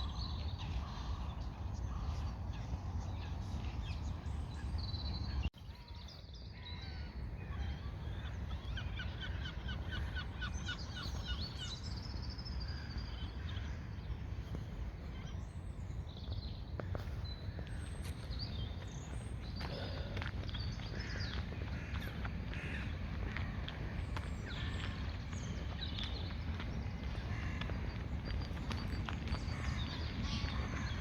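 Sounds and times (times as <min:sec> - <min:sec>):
songbirds singing and chirping: 0:00.0 - 0:31.0.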